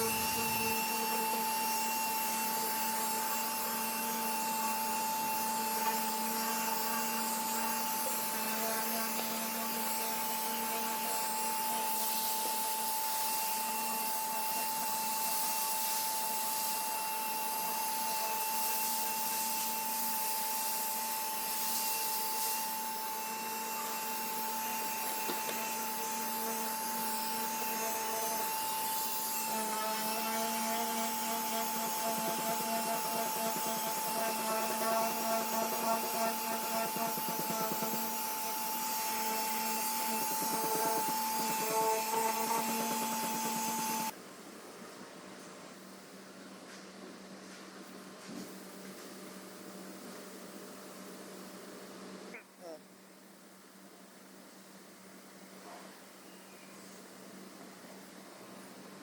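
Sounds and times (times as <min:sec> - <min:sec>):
small electric motor whining: 0:00.0 - 0:44.2.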